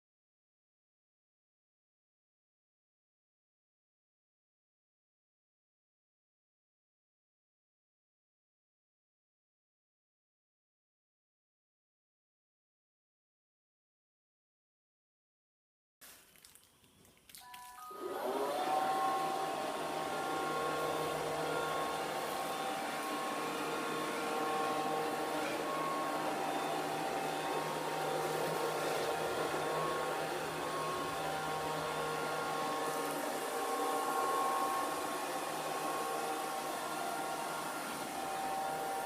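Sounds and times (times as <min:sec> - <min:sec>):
robot vacuum whirring: 0:17.8 - 0:39.0.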